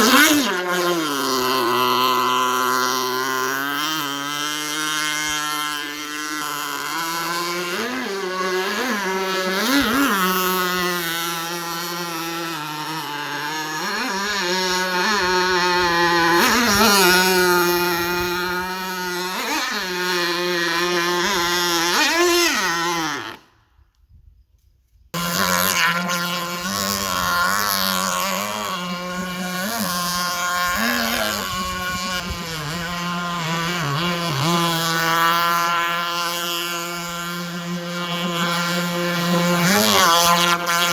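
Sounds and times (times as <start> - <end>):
model engine revving: 0.0 - 23.6, 25.2 - 40.9
steady drone: 25.2 - 40.9.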